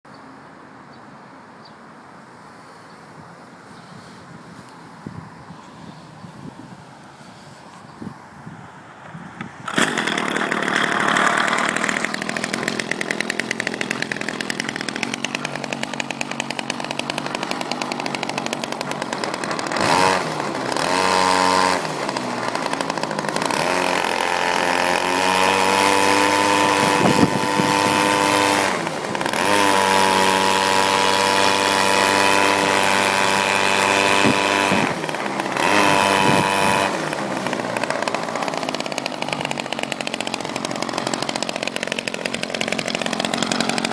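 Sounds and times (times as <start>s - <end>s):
weed whacker engine revving: 9.4s - 43.9s.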